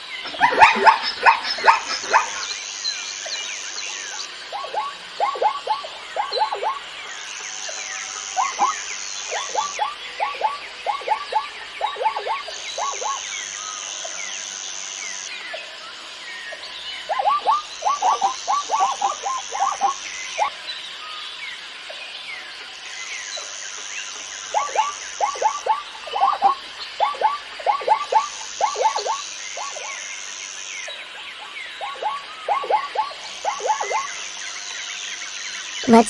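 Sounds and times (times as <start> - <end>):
faint chirps: 0.0 - 36.0
zebra yelping barks: 0.3 - 2.4.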